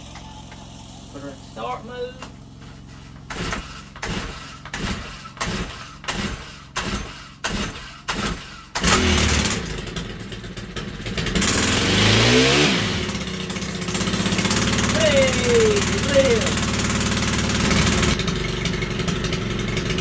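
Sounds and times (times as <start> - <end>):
small engine running and revving: 0.0 - 20.0
starter rope pulls: 2.2 - 10.0, 11.3 - 20.0.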